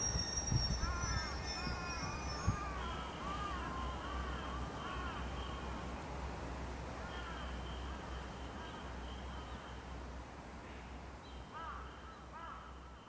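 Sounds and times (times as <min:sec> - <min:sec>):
bird calling: 0:00.0 - 0:05.7.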